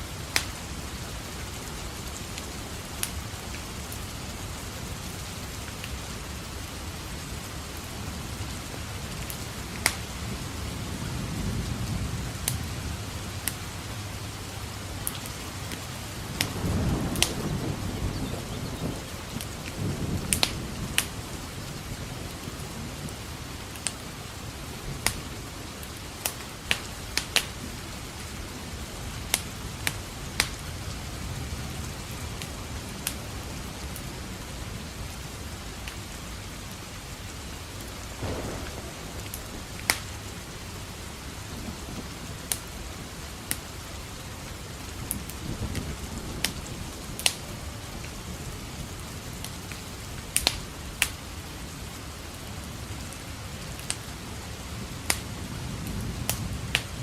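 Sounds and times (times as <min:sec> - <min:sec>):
steady rain: 0:00.0 - 0:57.0
wood fire crackling: 0:00.0 - 0:57.0
low thunder rumbling: 0:06.1 - 0:25.6, 0:38.2 - 0:51.0.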